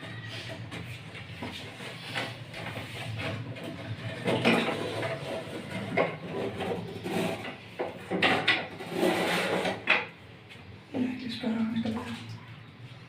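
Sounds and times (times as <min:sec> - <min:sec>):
plastic and metal parts scraping: 0:00.1 - 0:10.1.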